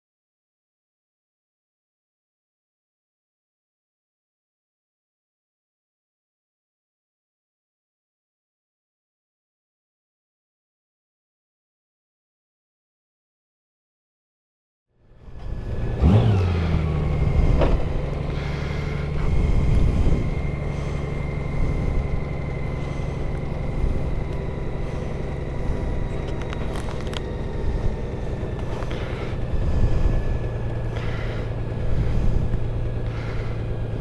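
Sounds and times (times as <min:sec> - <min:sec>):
motorcycle engine running: 0:15.1 - 0:34.0.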